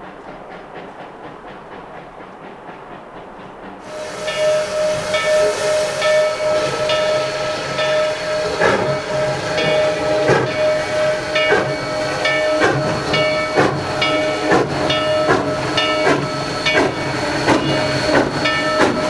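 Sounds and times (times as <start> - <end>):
steam hissing: 0.0 - 19.0
steam locomotive clatter: 0.0 - 19.0
steam whistle: 3.8 - 19.0.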